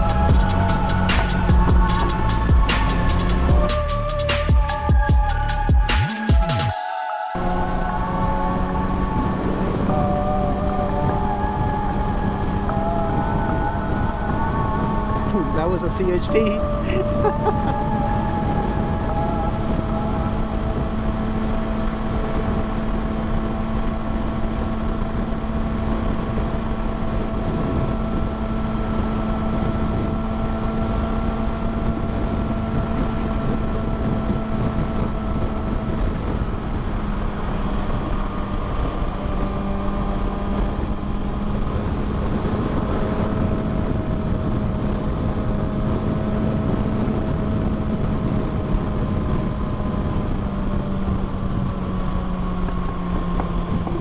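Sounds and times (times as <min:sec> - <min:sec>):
motorcycle engine cruising: 0:00.0 - 0:54.0
wind noise on microphone: 0:00.0 - 0:54.0.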